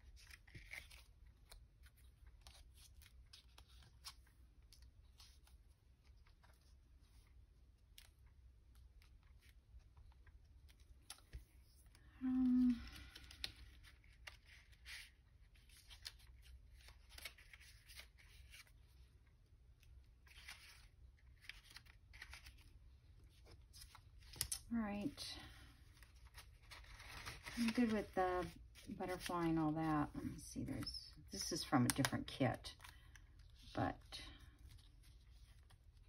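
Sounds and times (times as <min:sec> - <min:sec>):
person humming: 0:12.2 - 0:12.9
paper being handled: 0:20.2 - 0:36.0.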